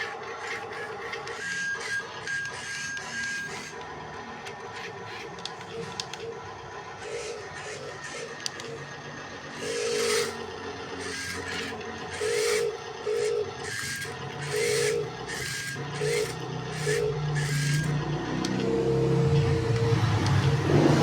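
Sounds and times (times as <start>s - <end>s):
small electric motor whining: 0.0s - 21.0s.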